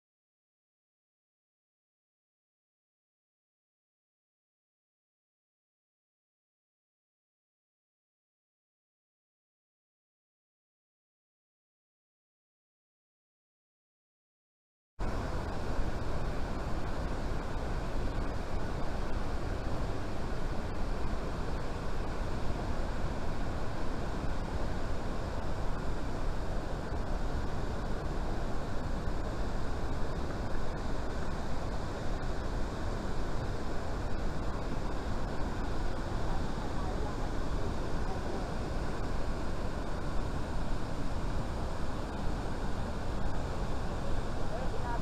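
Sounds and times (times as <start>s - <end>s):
waterfall rushing: 15.0s - 45.0s.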